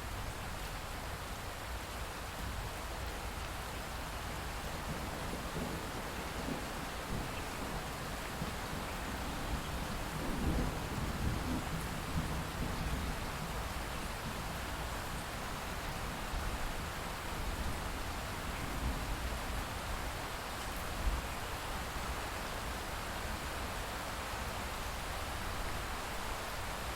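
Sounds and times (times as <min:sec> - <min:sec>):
light steady rain: 0:00.0 - 0:26.9
distant thunder rumble: 0:04.9 - 0:13.6.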